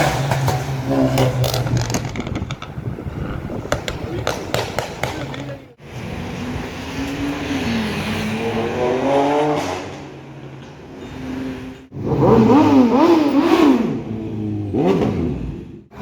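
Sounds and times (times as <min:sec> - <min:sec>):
car accelerating hard: 0:05.9 - 0:10.4, 0:11.9 - 0:16.0
car revving loudly: 0:06.0 - 0:10.4, 0:11.9 - 0:16.0.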